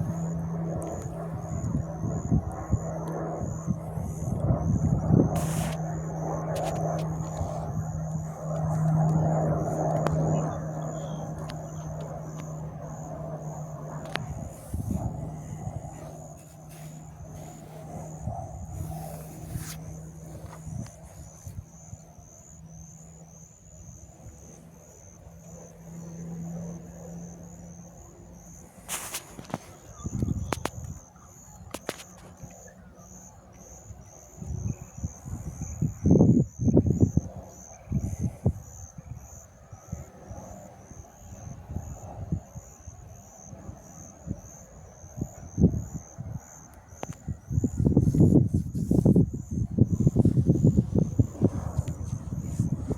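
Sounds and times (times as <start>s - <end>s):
wind buffeting microphone: 0.0s - 24.5s, 27.9s - 31.1s, 34.3s - 40.1s, 41.4s - 52.9s
low engine hum: 0.0s - 31.4s, 46.9s - 52.9s.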